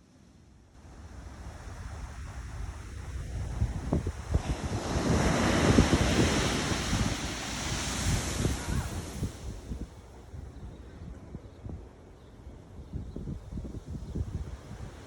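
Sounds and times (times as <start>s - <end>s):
wind buffeting microphone: 1.0s - 15.0s
ocean wave breaking: 4.0s - 9.8s.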